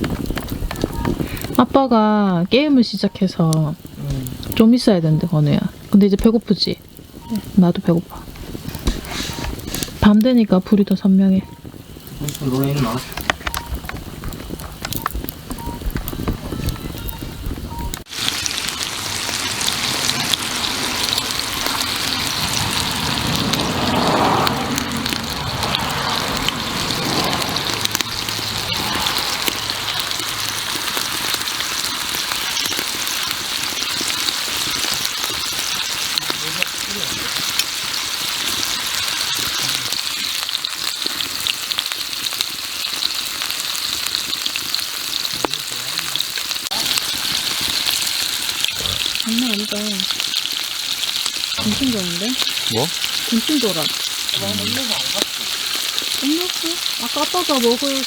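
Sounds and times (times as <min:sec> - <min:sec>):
pork belly sizzling: 0:00.0 - 0:58.0
faint voices: 0:04.0 - 0:04.4, 0:23.7 - 0:30.6, 0:48.7 - 0:50.1, 0:51.6 - 0:55.3.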